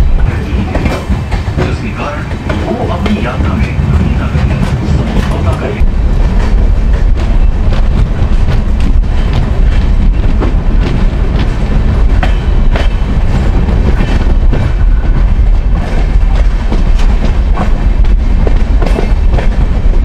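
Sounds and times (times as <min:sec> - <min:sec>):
wheels clacking over rail joints: 0:00.0 - 0:19.7
train wheels and wind rumbling: 0:00.0 - 0:20.0.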